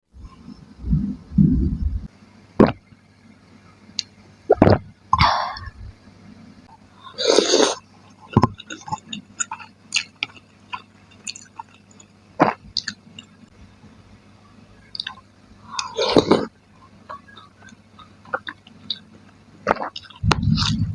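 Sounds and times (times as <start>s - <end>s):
noisy bursts: 0.1s - 2.8s, 20.2s - 20.9s
person chewing food: 8.5s - 13.3s, 14.9s - 16.4s, 19.6s - 20.9s.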